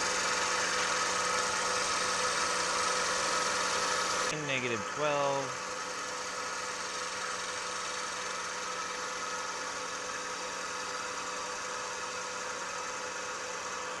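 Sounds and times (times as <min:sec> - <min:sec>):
wood lathe motor hum: 0:00.0 - 0:14.0.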